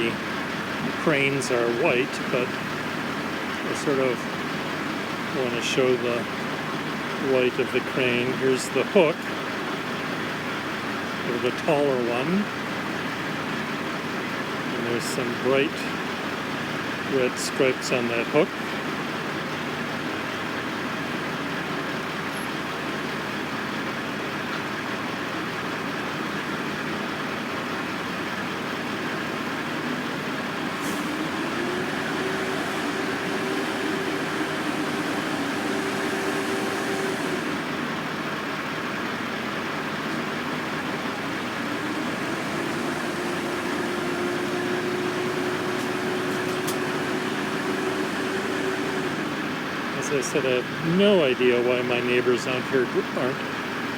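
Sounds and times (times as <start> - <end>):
heavy machinery engine drone: 0.0 - 53.9
engine revving up: 0.9 - 6.3, 30.0 - 38.2, 40.1 - 50.6.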